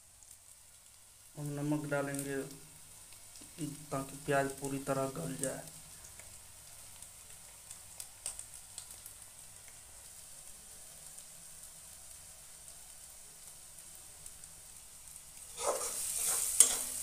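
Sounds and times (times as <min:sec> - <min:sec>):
onions sizzling in oil: 0:00.0 - 0:17.0
spatula scraping a pan: 0:15.5 - 0:17.0.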